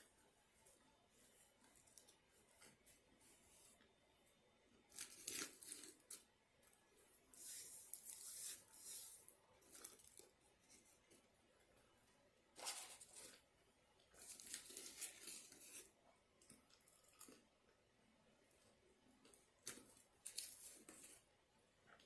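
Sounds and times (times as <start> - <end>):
paper wrapper crinkling and tearing: 4.9 - 6.2, 14.2 - 15.9.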